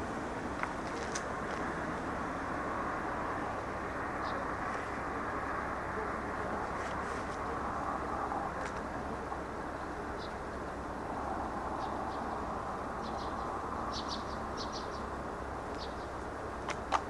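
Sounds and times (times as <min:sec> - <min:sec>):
low background noise: 0:00.0 - 0:17.0
small birds chirping: 0:09.6 - 0:10.7, 0:11.5 - 0:16.9.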